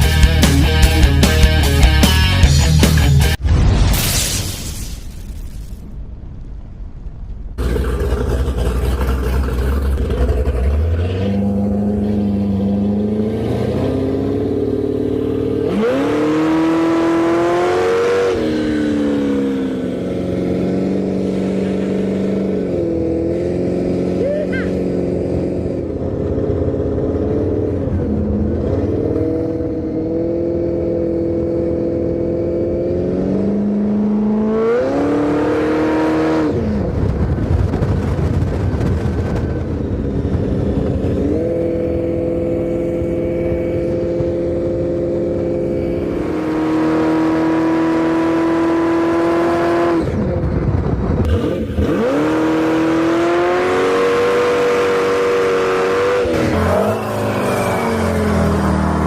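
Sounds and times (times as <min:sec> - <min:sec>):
motorcycle engine running hard: 0:18.2 - 0:34.0, 0:36.2 - 0:59.0.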